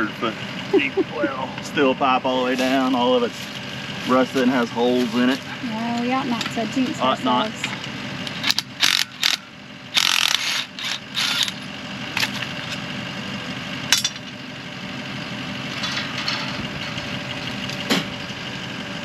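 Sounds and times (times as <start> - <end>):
engine idling: 0.0 - 19.0
metal clanks and rattles: 13.9 - 14.4, 15.6 - 18.4.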